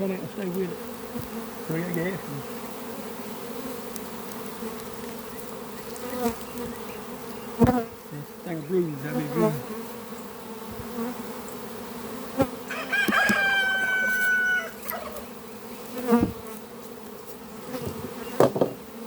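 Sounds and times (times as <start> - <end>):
honeybees humming: 0.0 - 19.0
rooster crowing: 12.6 - 15.3
sharp knocks: 17.8 - 18.8.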